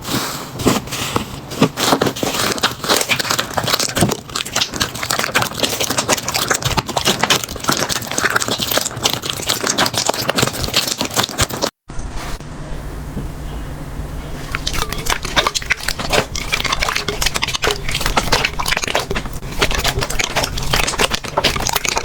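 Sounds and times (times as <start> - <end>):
slime crackling and popping: 1.8 - 11.8, 14.5 - 22.0.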